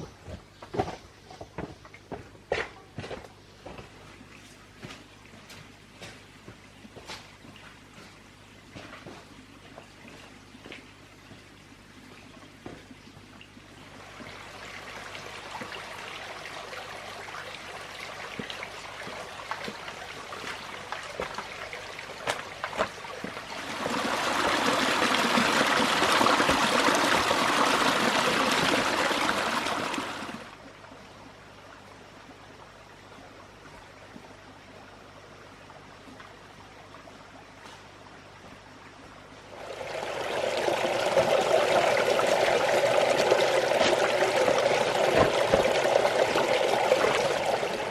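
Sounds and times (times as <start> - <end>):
water trickling and pouring: 12.0 - 30.6, 39.5 - 47.9.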